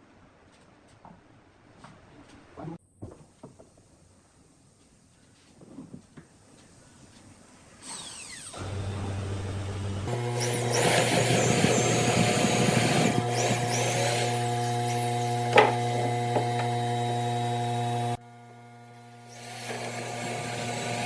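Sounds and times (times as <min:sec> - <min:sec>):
tool working wood: 0:07.8 - 0:18.2, 0:18.9 - 0:21.0
power tool motor humming: 0:07.8 - 0:21.0.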